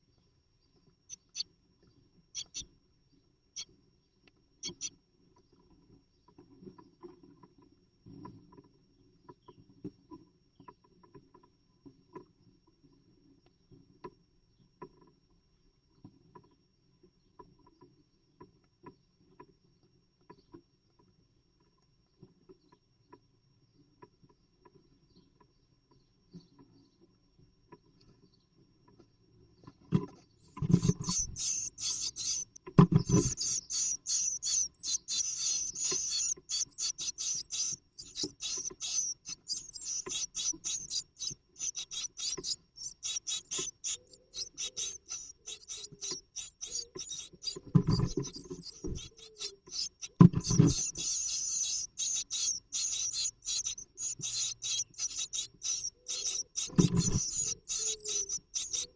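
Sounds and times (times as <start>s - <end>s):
scratching of nest material: 30.6s - 58.9s.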